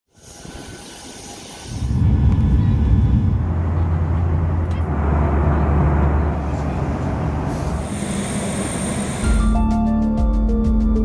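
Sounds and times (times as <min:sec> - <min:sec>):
loud low rumble with droning tone: 0:01.8 - 0:09.6
high hiss: 0:05.1 - 0:09.6.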